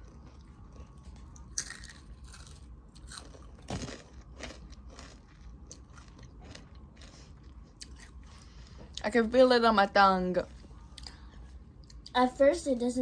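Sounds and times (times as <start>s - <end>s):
chewing crunchy chips: 0.0s - 9.0s.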